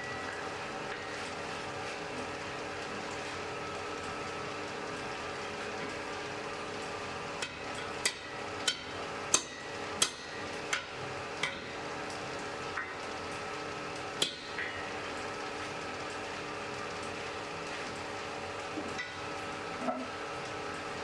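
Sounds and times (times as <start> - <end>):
forge humming: 0.0 - 21.0
hammer striking anvil: 7.4 - 11.7, 14.2 - 14.6.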